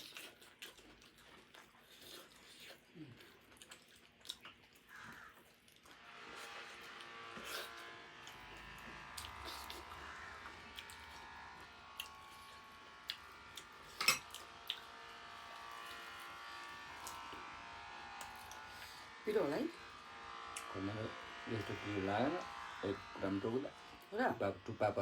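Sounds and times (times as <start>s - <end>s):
eating clicks and smacks: 3.4s - 5.9s
steady buzzing hum: 5.9s - 25.0s.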